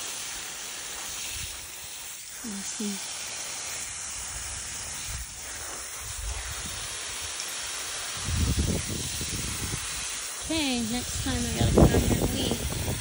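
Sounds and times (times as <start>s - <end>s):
wind hissing: 0.0s - 13.0s.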